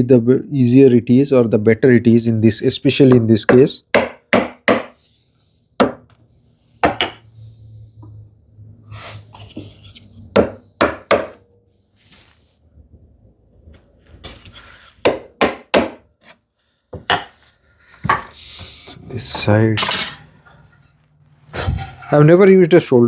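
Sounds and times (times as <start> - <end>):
chisel knocks: 3.1 - 4.9, 5.8 - 6.1, 6.8 - 7.2, 10.4 - 11.4, 15.0 - 16.4, 17.0 - 17.4
chisel paring wood: 3.1 - 5.0, 5.8 - 6.1, 10.3 - 11.4, 15.0 - 16.4, 17.0 - 17.4.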